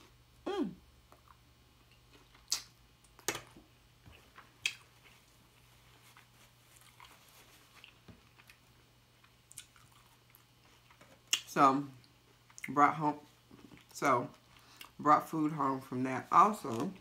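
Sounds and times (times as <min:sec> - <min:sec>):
taco crunching and chewing: 0:01.0 - 0:12.7.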